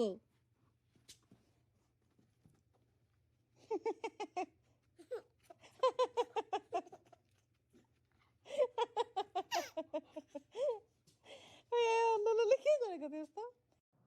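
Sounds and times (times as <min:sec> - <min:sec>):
person laughing: 0:08.5 - 0:10.8.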